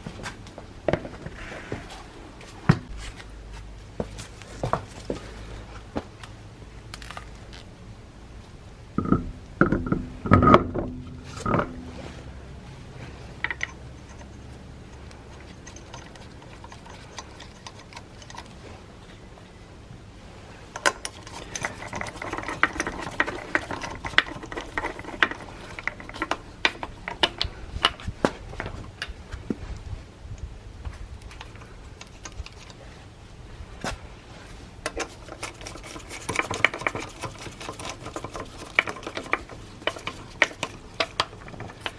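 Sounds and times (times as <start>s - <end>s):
tools knocking and clattering: 9.0s - 12.1s, 13.3s - 18.4s, 20.8s - 29.5s, 34.8s - 41.9s.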